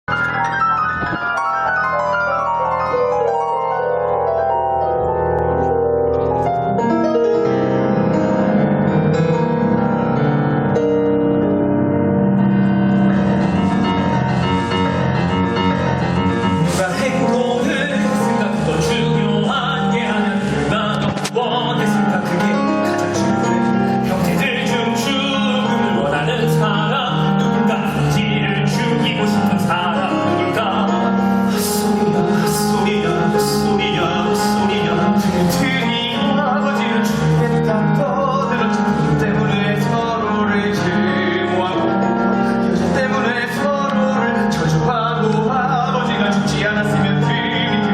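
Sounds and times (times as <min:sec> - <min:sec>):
piano and band accompaniment: 0:00.0 - 0:47.9
men singing: 0:16.6 - 0:22.6.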